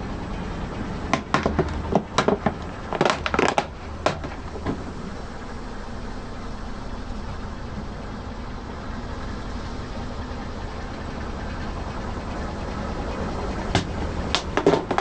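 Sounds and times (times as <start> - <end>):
car engine idling: 0.0 - 15.0
sharp cracks and crunches: 1.1 - 5.0.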